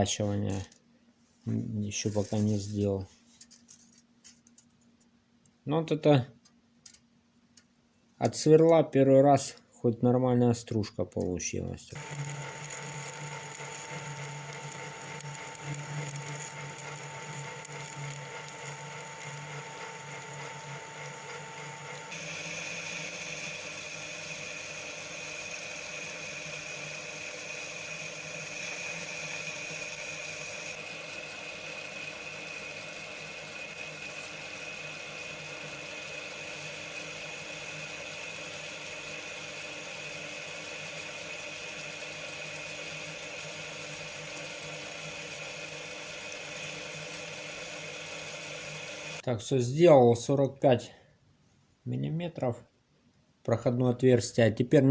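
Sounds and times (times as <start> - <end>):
lathe hole saw cutting whine: 12.0 - 49.2.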